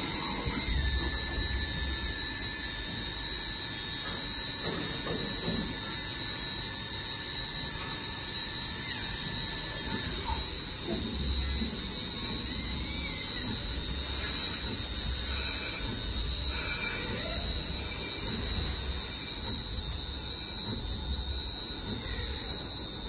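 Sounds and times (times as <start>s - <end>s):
lathe high whine and hum: 0.0s - 23.0s
lower machine whine: 0.0s - 23.0s.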